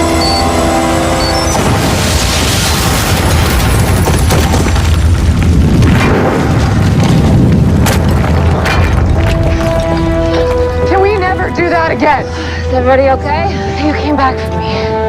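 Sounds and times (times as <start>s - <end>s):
deep rumbling explosion: 1.4s - 10.9s
sharp crashing impacts: 1.5s - 10.7s.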